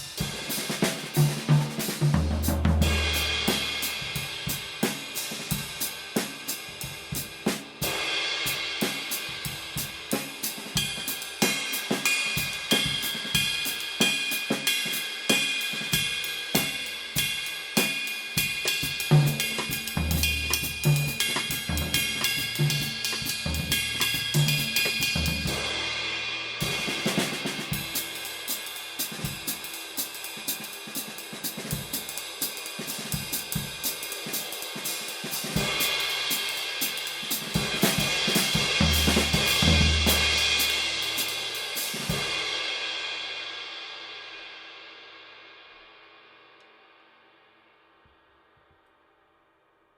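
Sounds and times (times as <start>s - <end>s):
drum kit groove: 0.0s - 43.6s
ride cymbal played with stick: 0.0s - 46.3s
bass drum beats: 19.0s - 25.9s, 37.6s - 41.5s.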